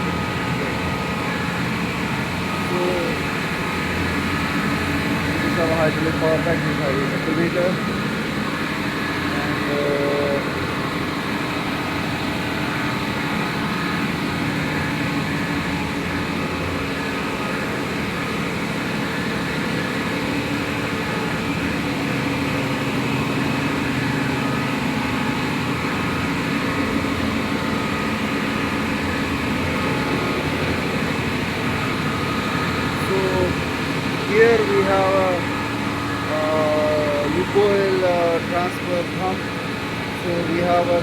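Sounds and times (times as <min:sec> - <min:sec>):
engine room machinery drone: 0:00.0 - 0:41.0
steady tonal hum: 0:00.0 - 0:41.0.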